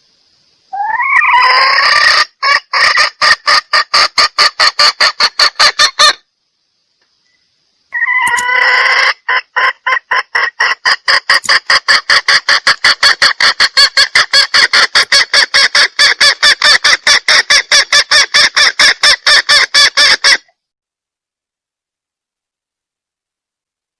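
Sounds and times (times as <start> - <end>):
junglefowl clucking: 0.7 - 6.2, 7.9 - 20.5
junglefowl harsh cackle: 0.7 - 6.2, 7.9 - 20.5.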